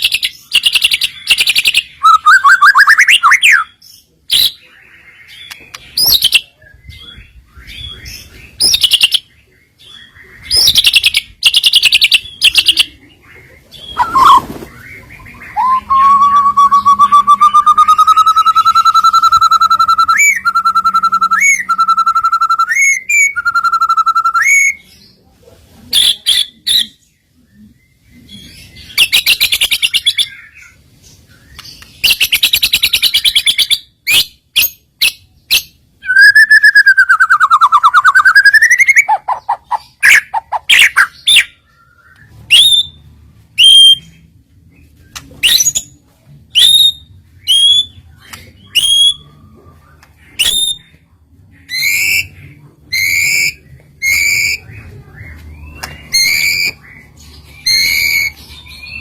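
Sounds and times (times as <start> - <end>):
songbird whistling: 0.0 - 3.8, 13.9 - 24.8, 36.0 - 39.2, 39.9 - 43.0, 46.6 - 48.0, 48.6 - 49.3, 50.4 - 51.0, 55.4 - 57.0, 57.6 - 59.0.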